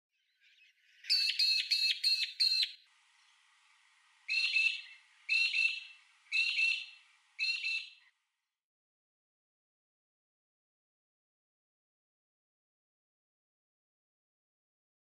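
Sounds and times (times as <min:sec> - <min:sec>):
harsh squawking bird calls: 0:00.4 - 0:08.1.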